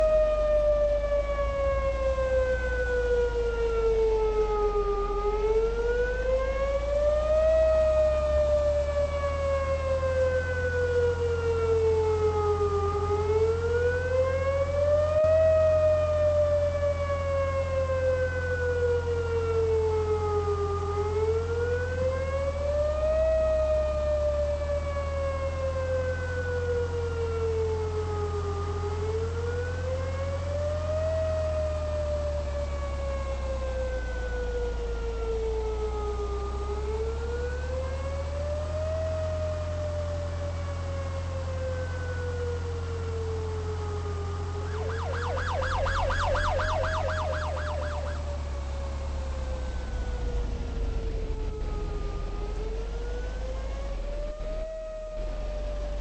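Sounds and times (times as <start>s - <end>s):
warning siren wailing: 0.0s - 56.0s
low rumble: 44.8s - 56.0s.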